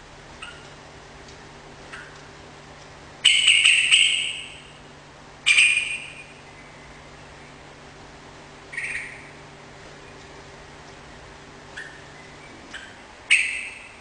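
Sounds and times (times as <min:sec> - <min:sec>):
bird chattering song: 0:00.4 - 0:00.8, 0:03.2 - 0:04.8, 0:05.4 - 0:07.6, 0:08.7 - 0:10.3, 0:11.7 - 0:14.0.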